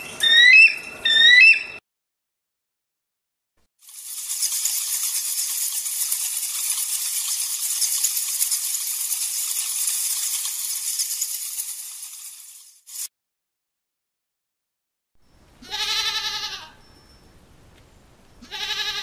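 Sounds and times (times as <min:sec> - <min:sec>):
rattlesnake tail rattling: 0:03.8 - 0:13.1.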